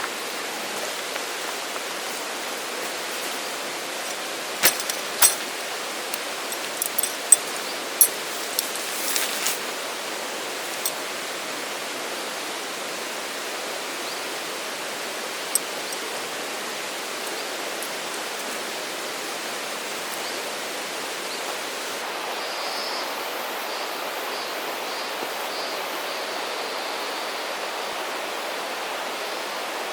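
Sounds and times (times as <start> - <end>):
steady rushing water: 0.0 - 29.9
sharp clicks and knocks: 4.6 - 5.5, 6.1 - 8.2.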